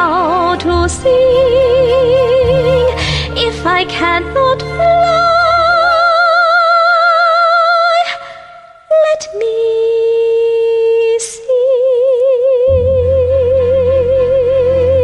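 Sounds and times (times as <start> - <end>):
low musical accompaniment: 0.0 - 6.5, 12.7 - 15.0
soprano singing with vibrato: 0.0 - 15.0.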